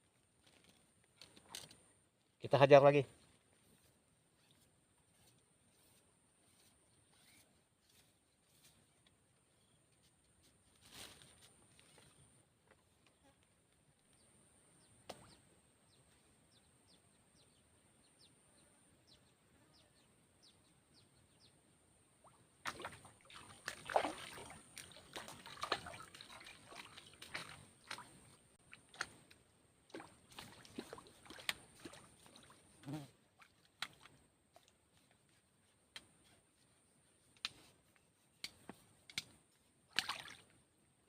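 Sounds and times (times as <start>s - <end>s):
water sloshing and splashing: 22.6s - 35.0s, 39.9s - 40.6s.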